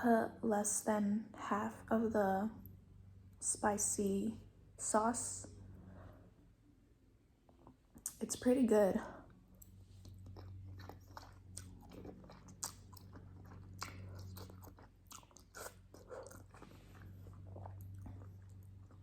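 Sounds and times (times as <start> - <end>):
person chewing noodles: 9.6 - 19.0.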